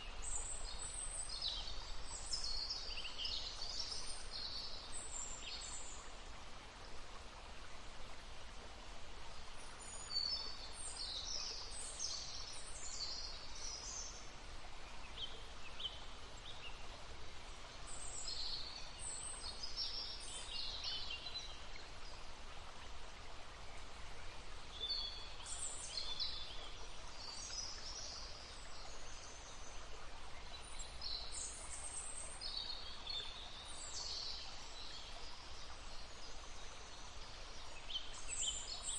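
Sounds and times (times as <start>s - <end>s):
stream babbling: 0.0s - 38.9s
songbirds singing: 9.3s - 22.3s, 23.5s - 38.9s.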